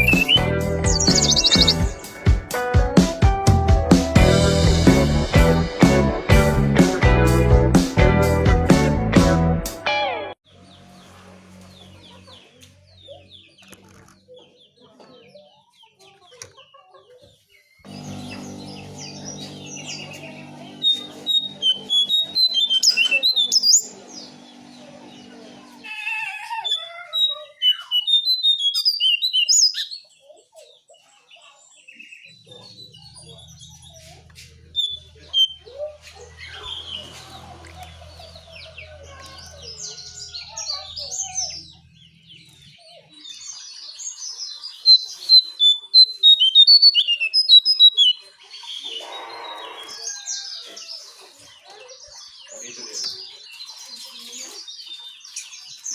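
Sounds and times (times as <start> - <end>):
bird warbling song: 0.0 - 2.1, 17.5 - 55.9.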